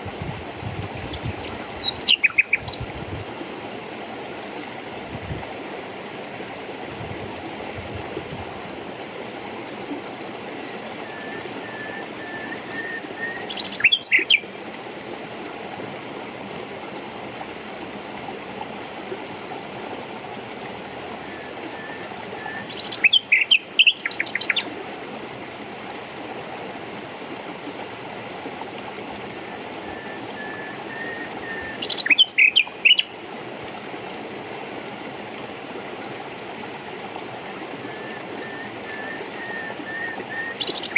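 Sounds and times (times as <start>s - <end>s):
running water: 0.0s - 40.9s
songbird singing: 0.4s - 2.9s, 10.6s - 14.6s, 21.2s - 24.7s, 29.5s - 33.2s, 37.9s - 40.9s.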